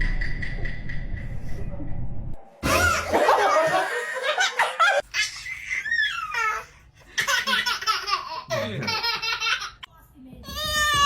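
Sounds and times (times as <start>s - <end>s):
baby giggling: 5.1s - 9.9s.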